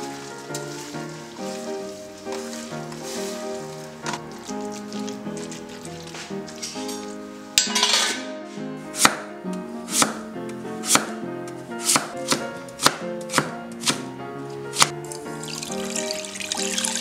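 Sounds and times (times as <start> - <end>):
background music: 0.0 - 17.0
cleaver chopping on wooden board: 9.0 - 9.2, 10.8 - 11.1, 11.8 - 14.0.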